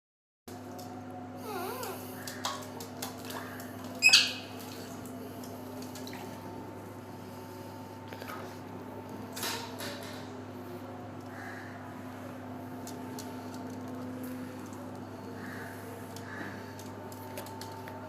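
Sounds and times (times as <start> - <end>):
steady low hum: 0.5 - 18.0
parrot warbling whistle: 4.0 - 4.4
parrot shrill squawk: 4.0 - 4.5.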